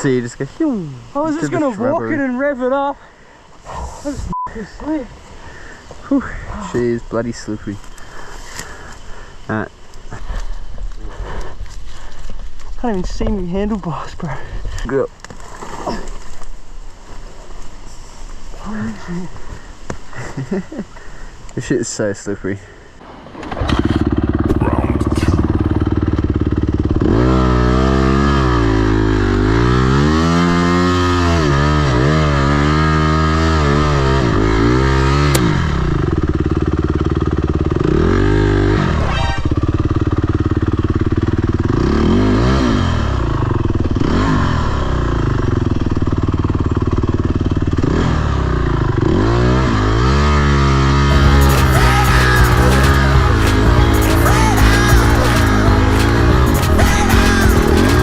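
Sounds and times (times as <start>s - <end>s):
dirt bike engine revving: 23.4s - 58.0s.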